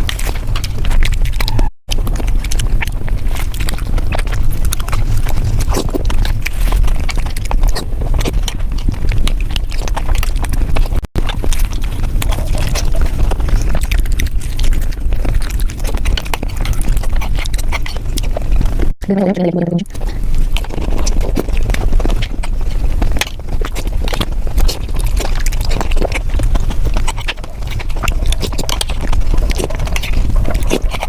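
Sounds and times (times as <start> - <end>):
crunching and wet chewing: 0.0 - 19.0, 19.8 - 31.0.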